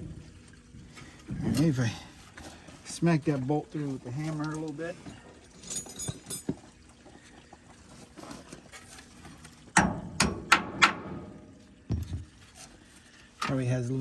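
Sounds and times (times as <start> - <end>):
dull knock: 11.9 - 12.3.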